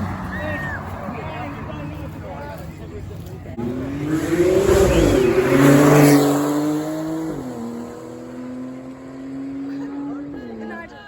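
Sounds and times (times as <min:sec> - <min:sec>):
car engine revving: 0:03.5 - 0:10.8.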